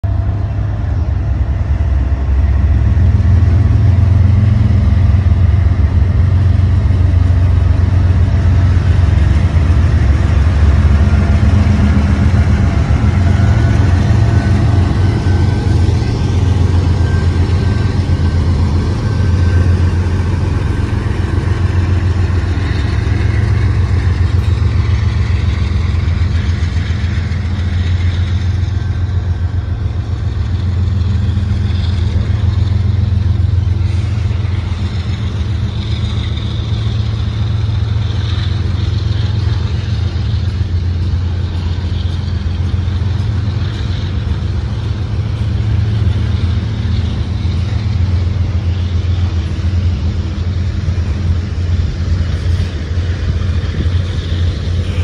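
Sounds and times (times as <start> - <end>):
diesel locomotive engine rumble: 0.0 - 55.0
freight cars rolling on rails: 0.0 - 55.0.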